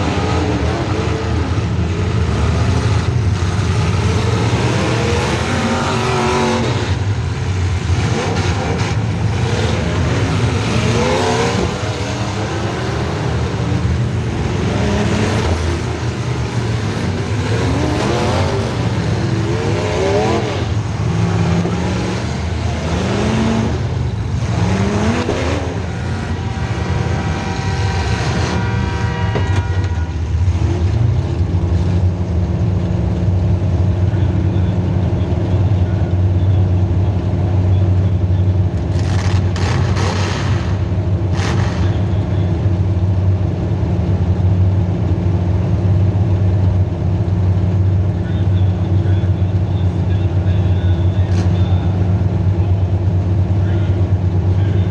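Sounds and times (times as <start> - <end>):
car engine revving: 0.0 - 43.8.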